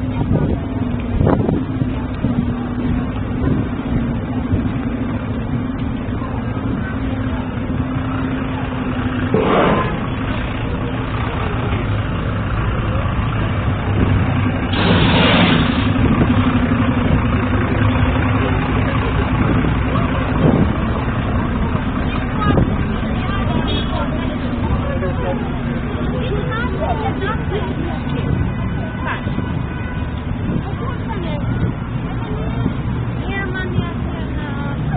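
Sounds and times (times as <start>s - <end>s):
engine hum: 0.0s - 34.9s
short noisy bursts: 14.7s - 16.0s.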